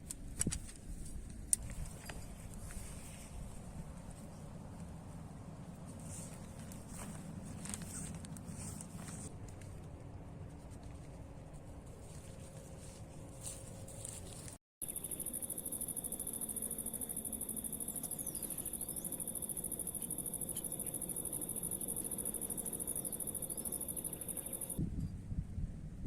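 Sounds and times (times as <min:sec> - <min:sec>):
cricket trilling: 0:14.8 - 0:24.8
wind noise on microphone: 0:24.8 - 0:26.0.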